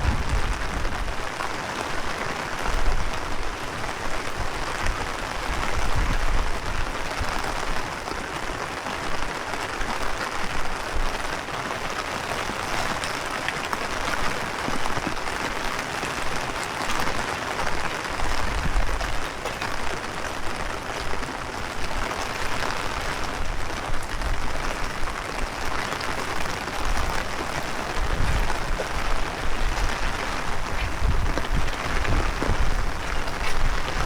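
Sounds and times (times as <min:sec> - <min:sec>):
wind buffeting microphone: 0:00.0 - 0:01.5, 0:02.6 - 0:07.8, 0:17.7 - 0:22.3, 0:22.9 - 0:34.0
heavy rain pattering: 0:00.0 - 0:34.0.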